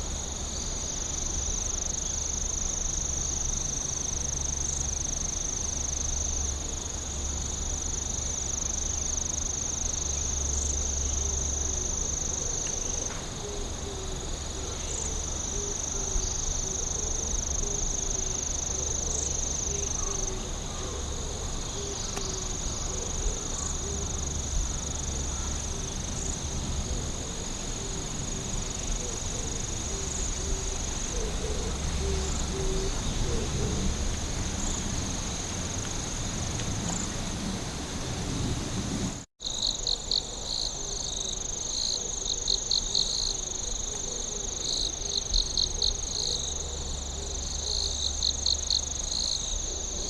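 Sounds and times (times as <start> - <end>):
lower insect trill: 0.0 - 38.7, 39.4 - 50.0
rapidly pulsing insect call: 0.0 - 50.0
insects trilling high: 0.2 - 38.8.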